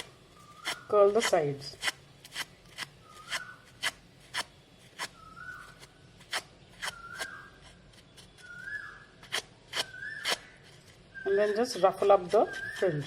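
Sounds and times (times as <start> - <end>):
faint whistle-like tone: 8.4 - 9.1, 11.1 - 13.0.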